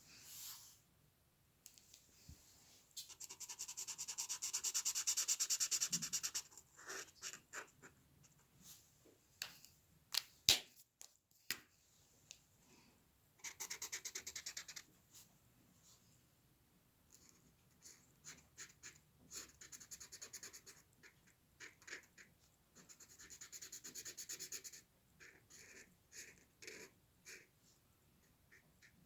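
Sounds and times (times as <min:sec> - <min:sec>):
pencil strokes on paper: 0:03.0 - 0:07.9.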